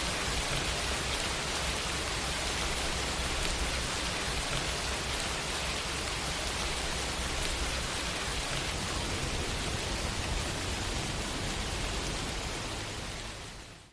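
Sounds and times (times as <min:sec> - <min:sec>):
heavy rain hissing: 0:00.0 - 0:13.9.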